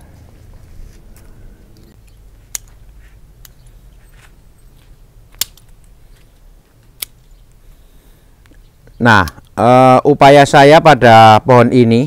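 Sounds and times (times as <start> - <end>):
pruning shears snipping twigs: 1.2 - 7.6.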